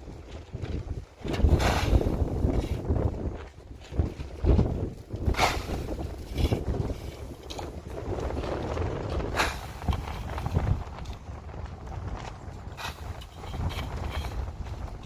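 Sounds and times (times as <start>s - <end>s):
wind rumbling on microphone: 0.0s - 15.0s
short scraping or rustling: 1.3s - 2.8s.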